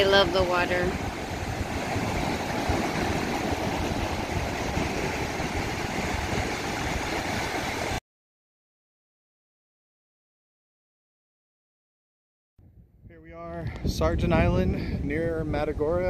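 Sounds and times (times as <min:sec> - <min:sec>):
running water spray: 0:00.0 - 0:08.0.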